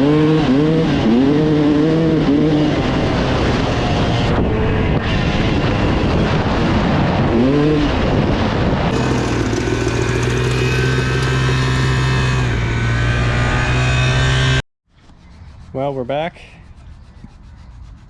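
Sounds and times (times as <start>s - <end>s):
road and wind noise: 0.0s - 18.0s
vehicle engine running: 8.9s - 14.6s.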